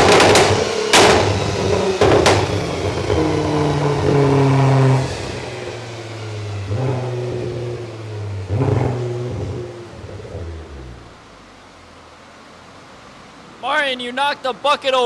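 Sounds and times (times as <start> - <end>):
exhaust pop: 0.0 - 11.2
car engine revving: 0.0 - 12.2.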